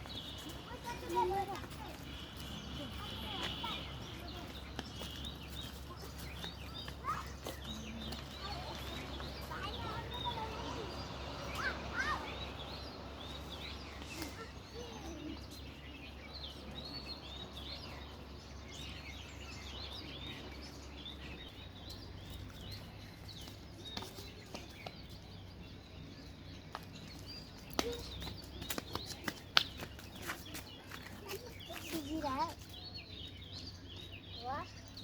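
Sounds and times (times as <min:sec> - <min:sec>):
baby birds chirping: 0:00.0 - 0:35.0.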